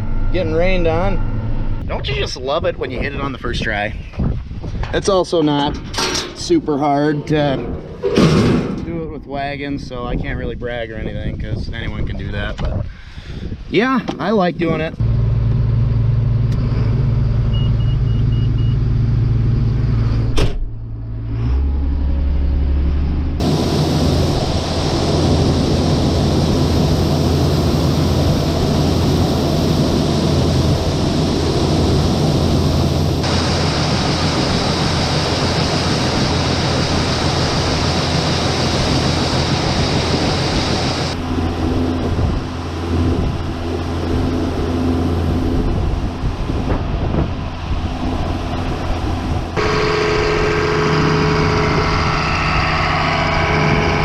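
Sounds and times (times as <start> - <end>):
tractor engine droning: 15.0 - 54.0
high beeps: 17.5 - 18.8.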